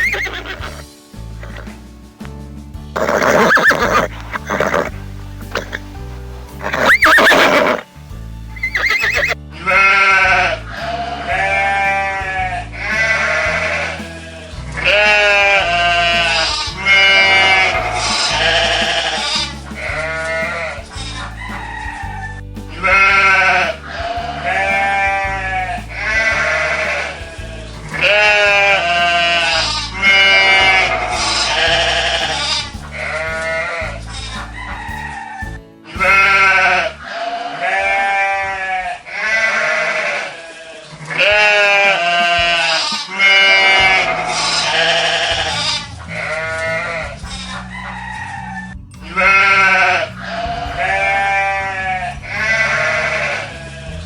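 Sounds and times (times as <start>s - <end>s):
livestock bleating: 0.0s - 0.8s, 3.0s - 5.9s, 6.6s - 7.8s, 8.6s - 22.1s, 22.7s - 34.3s, 35.9s - 54.0s
background music: 0.0s - 54.0s.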